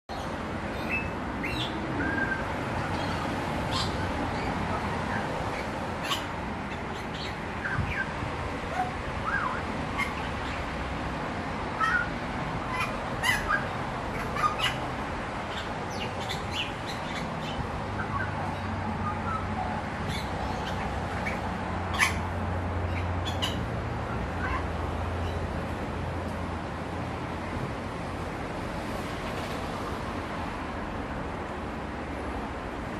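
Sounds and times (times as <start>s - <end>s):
bird chirps and calls: 0.1s - 10.7s, 11.8s - 14.8s, 15.5s - 22.3s, 22.9s - 25.4s
steady background noise: 0.1s - 32.9s.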